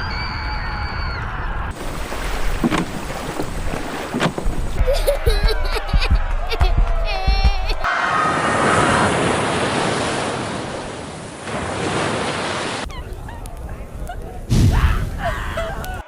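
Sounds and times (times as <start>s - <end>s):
waves rushing: 1.7s - 5.9s, 7.8s - 13.7s.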